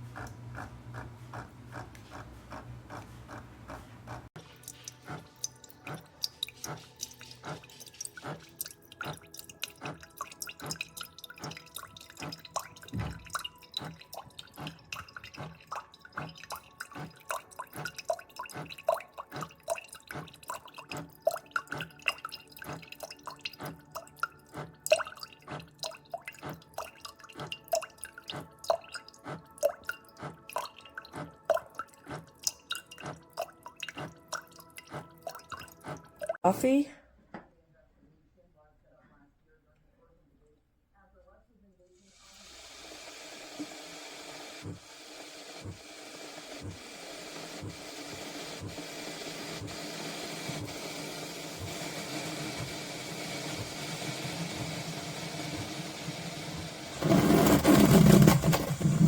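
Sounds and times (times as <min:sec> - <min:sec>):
coffee maker hum: 0:00.0 - 0:09.2, 0:42.1 - 0:59.0
coffee dripping into cup: 0:04.4 - 0:36.4.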